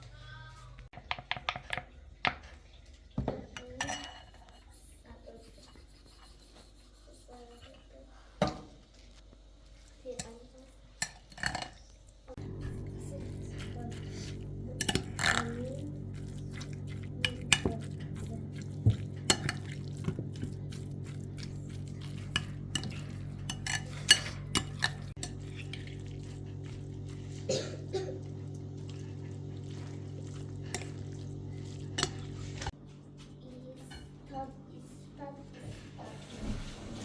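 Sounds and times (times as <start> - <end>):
pots and utensils clinking: 3.2 - 4.4, 12.4 - 20.7, 21.4 - 32.8
steady low hum: 12.3 - 36.0.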